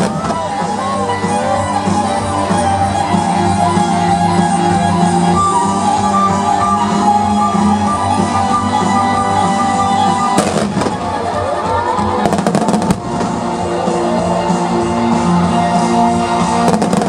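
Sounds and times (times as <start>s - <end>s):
fireworks crackling: 0.0s - 3.9s, 6.9s - 17.0s
music over loudspeakers: 0.0s - 17.0s
firework bang: 10.4s - 11.2s, 16.7s - 17.0s.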